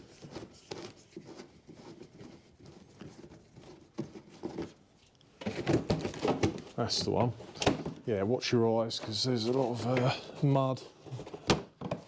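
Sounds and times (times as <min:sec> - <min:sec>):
person speaking: 0:09.3 - 0:10.9.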